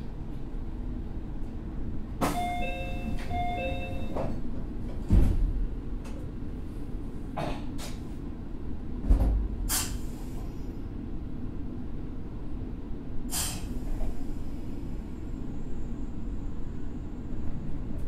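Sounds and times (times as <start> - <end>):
train rumble: 0.0 - 18.0
two-note chime: 2.4 - 4.1
short hisses: 9.7 - 10.4, 13.3 - 13.7.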